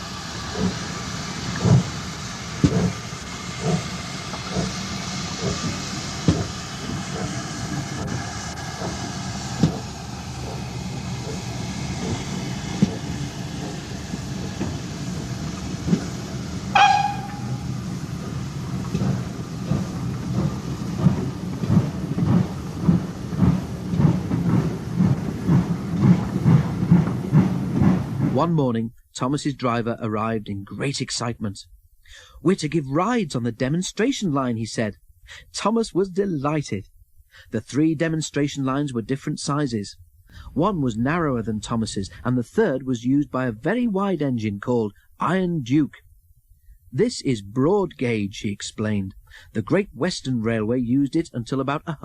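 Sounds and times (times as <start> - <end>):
steam locomotive exhaust beats: 0.0 - 29.9
steady steam hiss: 0.0 - 52.0
locomotive whistle toot: 16.7 - 17.8.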